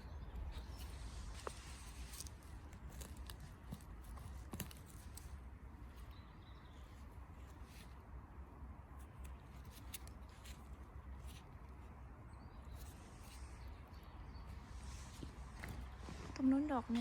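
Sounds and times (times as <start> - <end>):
leaf litter crackling and rustling: 0.4 - 6.1.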